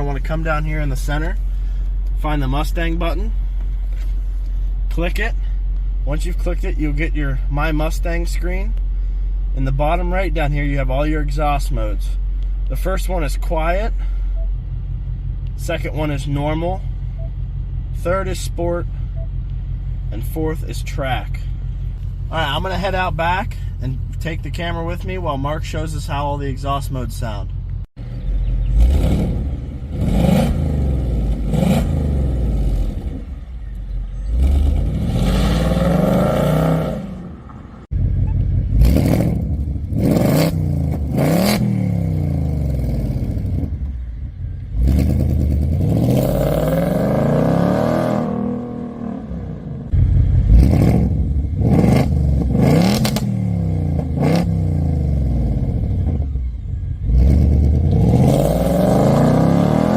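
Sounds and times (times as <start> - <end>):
car engine revving: 12.7 - 59.9.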